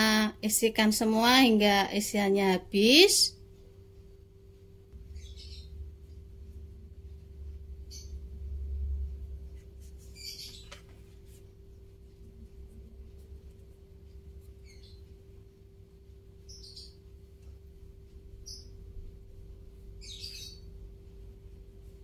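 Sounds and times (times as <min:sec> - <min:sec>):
steady low hum: 0:00.0 - 0:22.0
bird chirping: 0:05.0 - 0:06.2, 0:07.7 - 0:08.6, 0:09.5 - 0:12.2, 0:14.1 - 0:15.6, 0:16.3 - 0:17.6, 0:18.3 - 0:19.0, 0:19.8 - 0:21.0.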